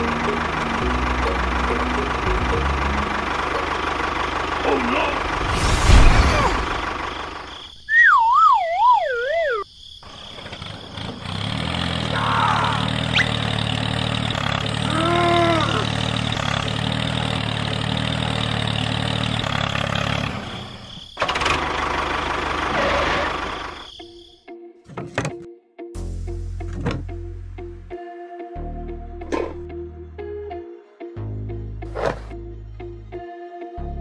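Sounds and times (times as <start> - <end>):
small engine running: 0.0 - 7.5, 10.1 - 23.9
wavering whistle-like tone: 7.9 - 9.6.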